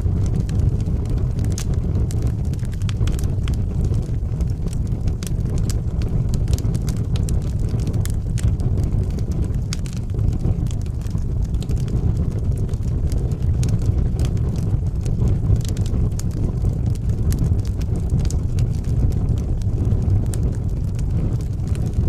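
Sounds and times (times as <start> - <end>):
wood fire roaring and crackling: 0.0 - 22.0.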